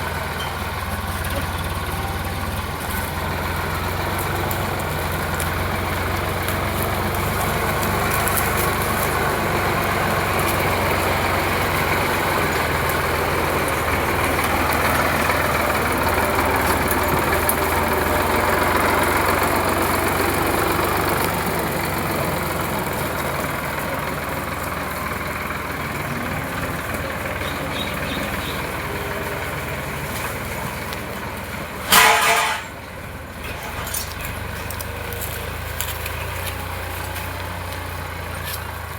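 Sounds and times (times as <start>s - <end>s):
tractor diesel engine running: 0.0s - 38.9s
horn toot: 31.9s - 32.8s.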